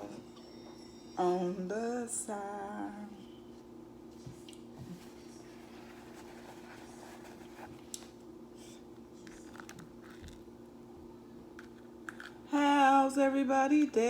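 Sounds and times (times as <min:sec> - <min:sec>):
scratching handling noise: 0:04.8 - 0:08.2.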